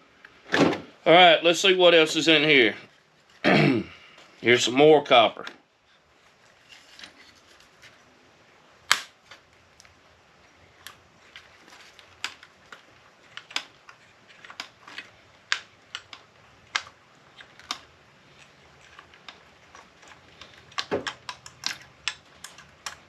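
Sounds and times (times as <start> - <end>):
hand tools clicking and snapping: 10.8 - 23.0.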